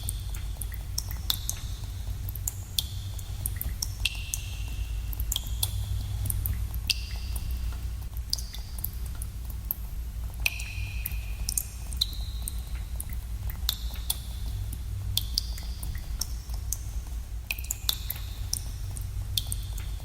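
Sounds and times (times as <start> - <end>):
water drops plinking in a cave: 0.0 - 20.0.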